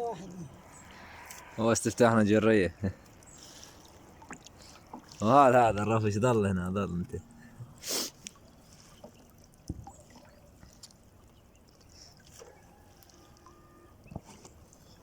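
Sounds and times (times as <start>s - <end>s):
water trickling and dripping: 0.0s - 15.0s.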